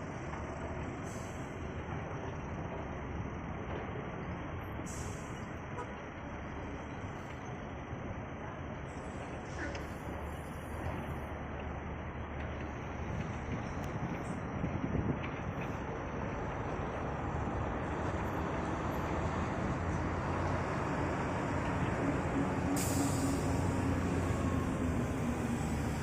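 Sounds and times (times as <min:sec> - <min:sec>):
heavy earth-moving machinery: 0:00.0 - 0:26.0
brief hiss: 0:22.8 - 0:23.7.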